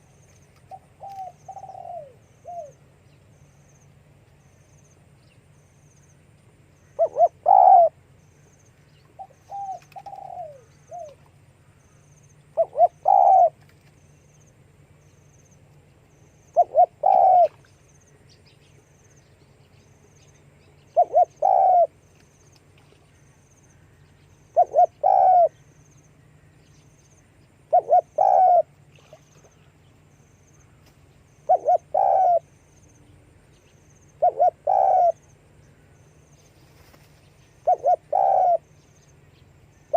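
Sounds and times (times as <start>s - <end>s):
dove cooing: 0.6s - 2.8s, 6.9s - 8.0s, 9.2s - 11.2s, 12.5s - 13.7s, 16.5s - 17.7s, 21.0s - 22.0s, 24.5s - 25.6s, 27.7s - 29.2s, 31.4s - 32.6s, 34.2s - 35.3s, 37.6s - 38.7s.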